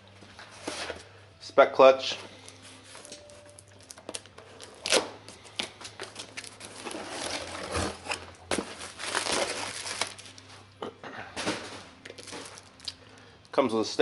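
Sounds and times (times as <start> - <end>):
packaging crinkling and rustling: 2.4 - 10.5, 11.4 - 13.0.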